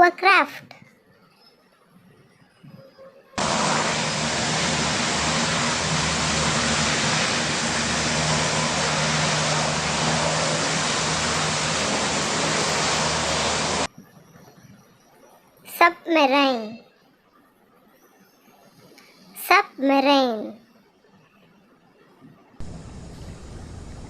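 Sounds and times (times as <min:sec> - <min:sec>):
hovercraft running: 0:03.4 - 0:13.9, 0:22.6 - 0:24.0.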